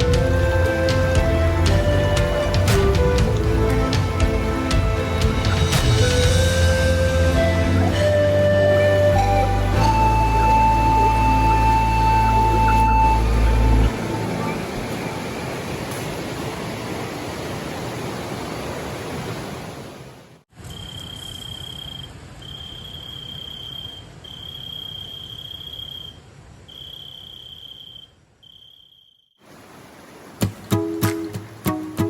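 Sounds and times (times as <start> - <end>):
insect trilling: 20.6 - 29.3.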